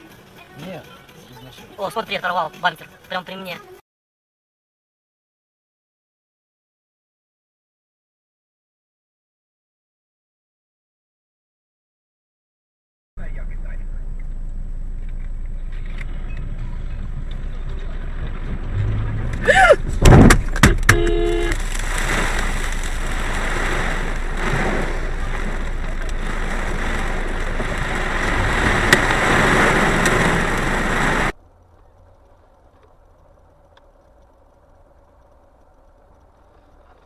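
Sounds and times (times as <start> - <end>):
road and engine noise: 0.0 - 3.8, 13.2 - 37.0
vehicle crash bangs: 16.9 - 31.3.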